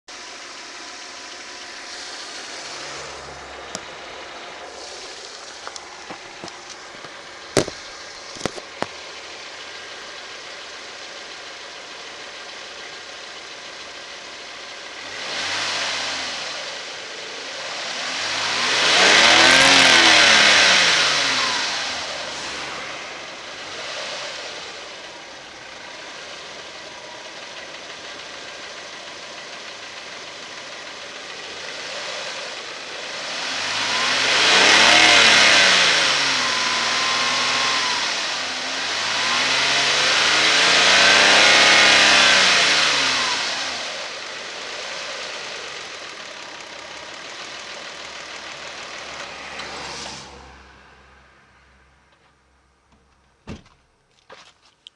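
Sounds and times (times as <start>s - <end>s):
car engine idling and revving: 0.0s - 54.9s.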